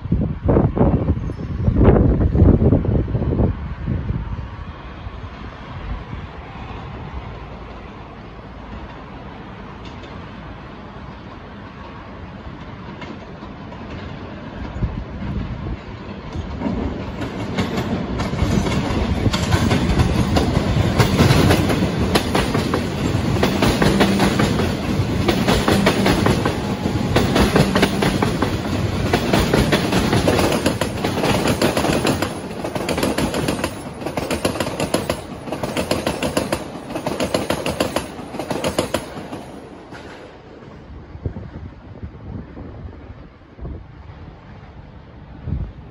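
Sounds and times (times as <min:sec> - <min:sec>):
train wheels clattering over rail joints: 0:11.8 - 0:40.7.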